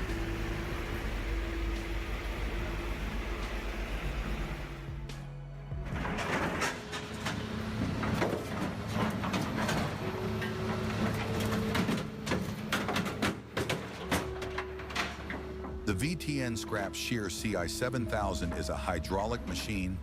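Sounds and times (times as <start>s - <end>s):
machinery engine drone: 0.0s - 20.0s
metal cracking and crunching: 5.8s - 15.9s.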